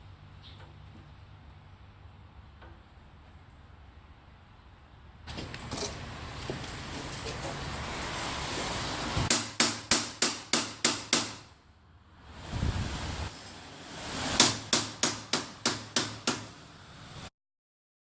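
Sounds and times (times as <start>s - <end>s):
hammer blows: 13.3s - 16.6s.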